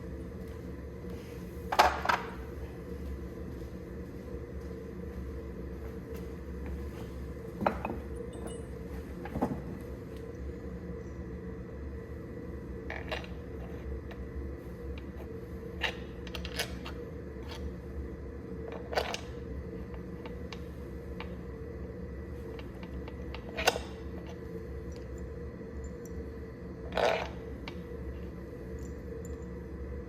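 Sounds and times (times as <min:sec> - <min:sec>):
steady machine hum: 0:00.0 - 0:30.0
metallic clinks and knocks: 0:08.3 - 0:08.8.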